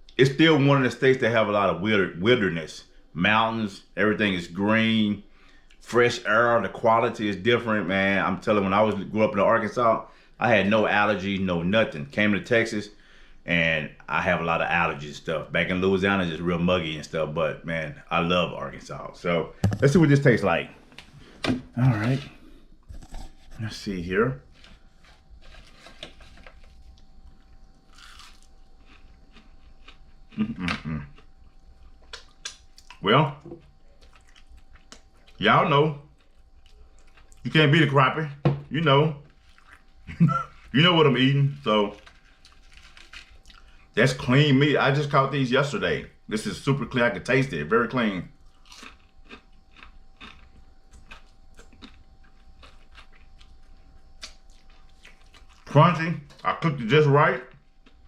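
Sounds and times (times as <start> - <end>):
person chewing crispy fried food: 21.8 - 23.6, 24.4 - 35.4, 36.1 - 37.5, 39.3 - 40.8, 41.5 - 44.0, 48.3 - 55.7, 57.6 - 58.0
mouth clicks: 30.3 - 31.3.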